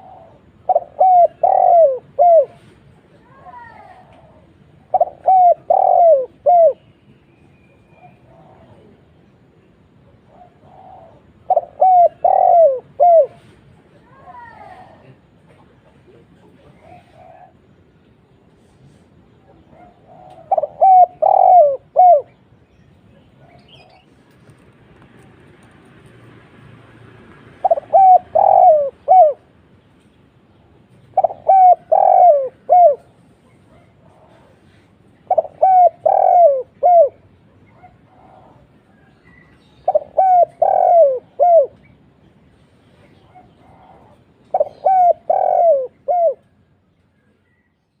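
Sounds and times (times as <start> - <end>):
dove cooing: 0.0 - 2.8, 3.6 - 6.9, 10.1 - 13.6, 16.1 - 17.7, 19.5 - 22.4, 27.6 - 29.6, 31.0 - 41.9, 43.1 - 46.6.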